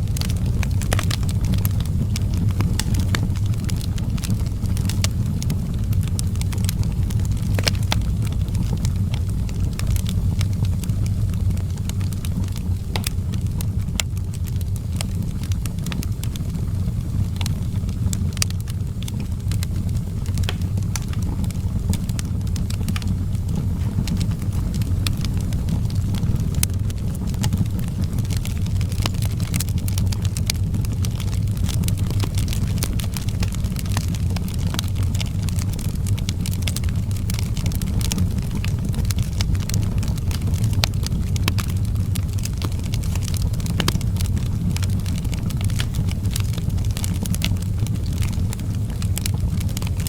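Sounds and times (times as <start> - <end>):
fire crackling and popping: 0.0 - 50.0.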